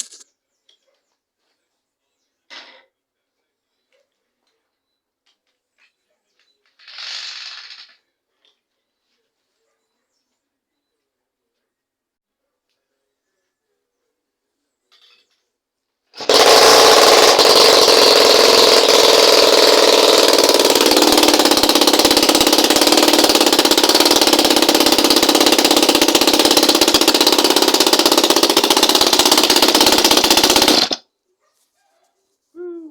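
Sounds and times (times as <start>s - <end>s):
two-stroke engine running unmuffled: 16.2s - 31.0s.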